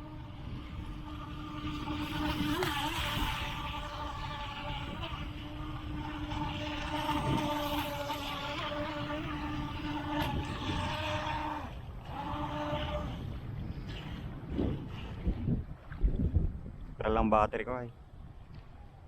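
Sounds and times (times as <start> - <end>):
electric motor whining: 0.0 - 14.2.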